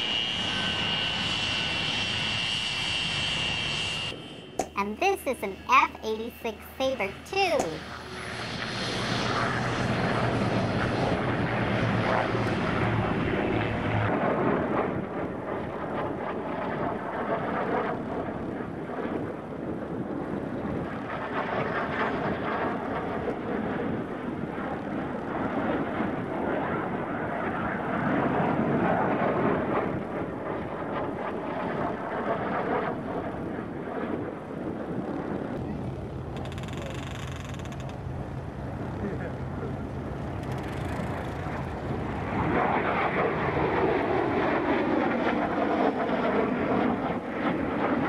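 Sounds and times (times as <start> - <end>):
jet fighter engine rushing: 0.0 - 15.0, 34.2 - 48.0
steady low hum: 34.8 - 44.7.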